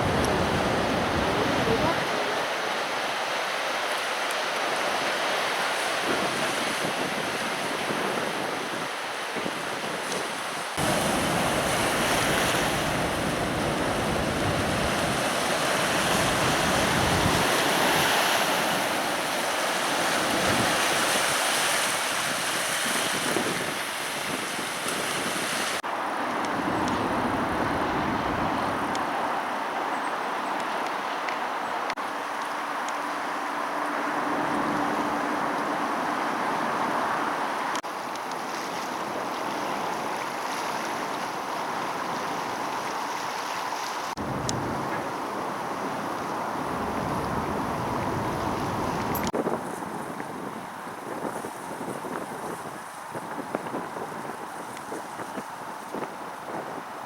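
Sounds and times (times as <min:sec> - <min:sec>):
wind buffeting microphone: 0:00.0 - 0:02.4, 0:06.0 - 0:29.2, 0:44.2 - 0:57.0
floodwater roaring: 0:00.0 - 0:57.0.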